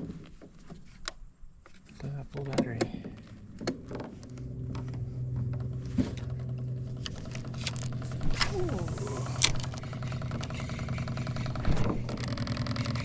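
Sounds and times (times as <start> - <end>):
knocks and clicks on boat: 2.0 - 8.5, 9.4 - 13.0
electric motor humming: 3.3 - 13.0.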